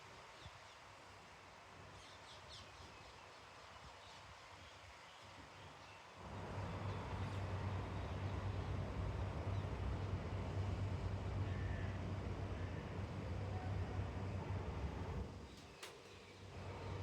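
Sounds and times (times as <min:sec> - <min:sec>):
steady low rumble: 0:06.2 - 0:15.3.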